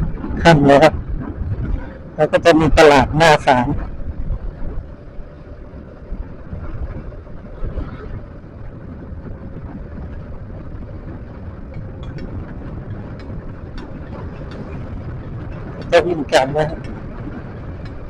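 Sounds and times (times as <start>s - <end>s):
road noise: 0.0s - 18.0s
wind on microphone: 0.0s - 18.0s
faint scooter engine hum: 3.8s - 15.9s.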